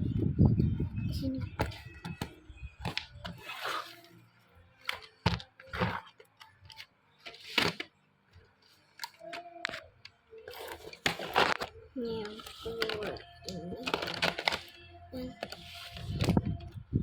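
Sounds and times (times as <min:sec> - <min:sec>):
pencil case rustle: 0:01.5 - 0:04.1, 0:04.8 - 0:07.9, 0:10.4 - 0:16.6
pencils clicking and knocking: 0:09.0 - 0:16.6.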